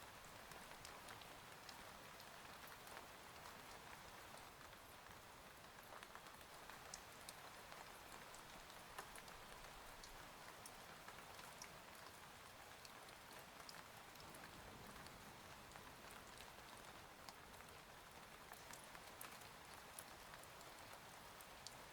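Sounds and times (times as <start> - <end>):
small drip ticks: 0.2 - 5.2, 5.8 - 14.4, 18.5 - 21.9.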